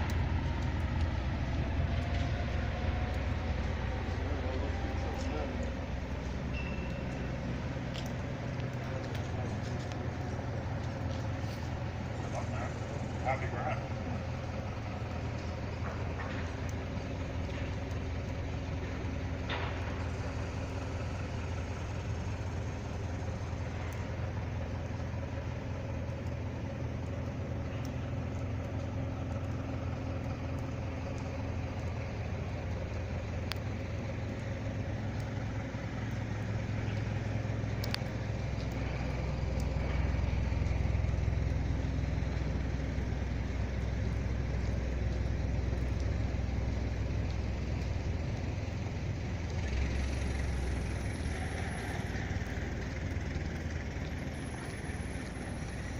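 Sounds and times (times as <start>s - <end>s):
vehicle engine running: 0.0s - 55.9s
faint ticks: 23.6s - 48.7s.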